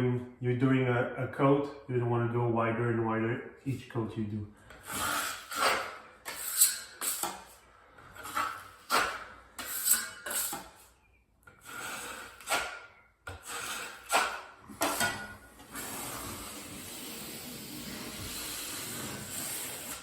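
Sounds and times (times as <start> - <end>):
trowel scraping drywall compound: 4.7 - 20.0.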